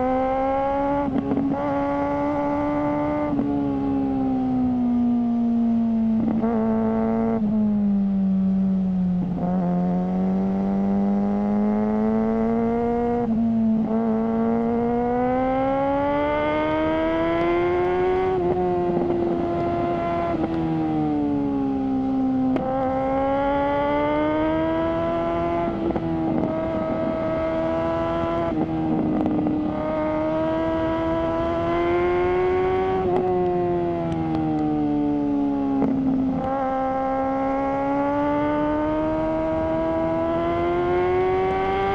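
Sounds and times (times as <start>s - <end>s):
motorcycle engine running: 35.4s - 41.9s.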